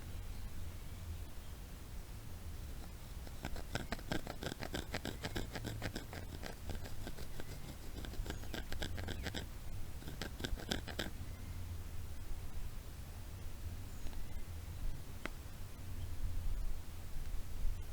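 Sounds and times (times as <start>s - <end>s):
knife scraping wood: 2.7s - 11.1s.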